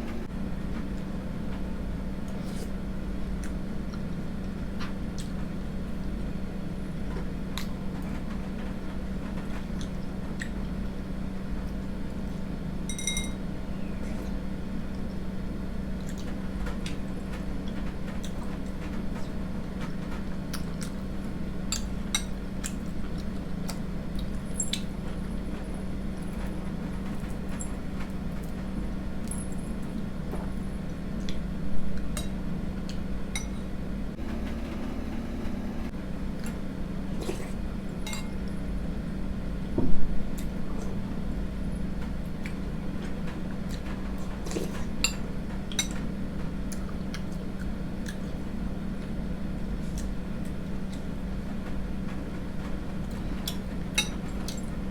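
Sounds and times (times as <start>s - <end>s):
steady low hum: 0.0s - 54.9s
spoon clinking against bowl: 12.9s - 13.4s.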